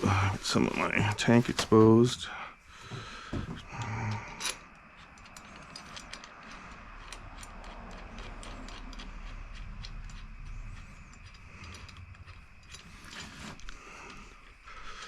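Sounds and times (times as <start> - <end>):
hand ratchet clicking: 3.6 - 15.0.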